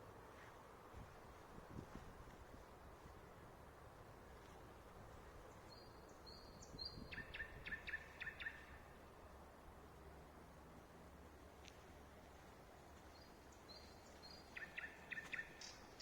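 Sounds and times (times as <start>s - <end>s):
steady low hiss: 0.0s - 16.0s
songbird singing: 5.4s - 9.2s, 12.8s - 16.0s.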